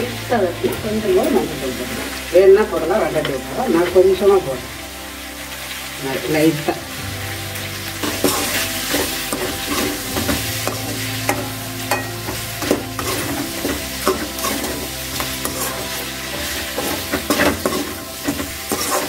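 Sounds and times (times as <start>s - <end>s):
chicken sizzling in oil: 0.0s - 19.0s
metal spoon scraping pan: 8.0s - 19.0s.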